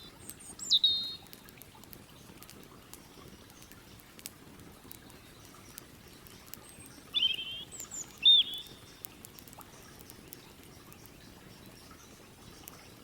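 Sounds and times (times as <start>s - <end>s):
campfire crackling: 0.0s - 13.0s
bird calling: 0.6s - 1.2s, 7.1s - 9.0s.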